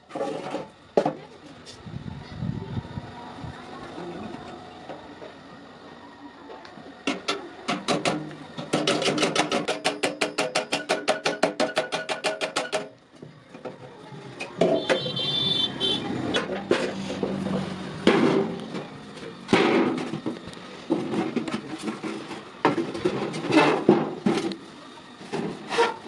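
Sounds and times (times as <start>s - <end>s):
knocks and clanks of metal: 7.0s - 15.2s, 16.3s - 24.6s, 25.2s - 26.0s
hammer striking iron: 7.1s - 12.9s.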